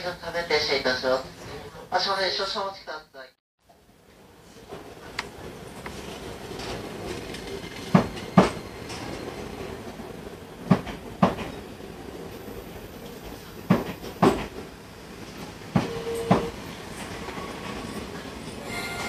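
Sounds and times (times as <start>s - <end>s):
train running rumble: 4.5s - 19.0s
wheels clacking over rail joints: 4.7s - 11.7s.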